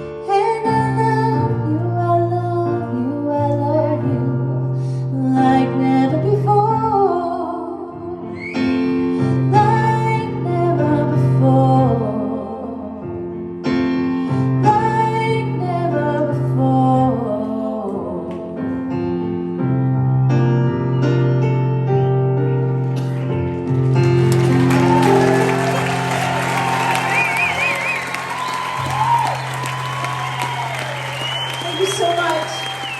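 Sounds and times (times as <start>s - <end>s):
piano accompaniment: 0.0s - 32.9s
woman singing: 0.2s - 4.4s, 5.2s - 8.1s, 14.6s - 18.6s.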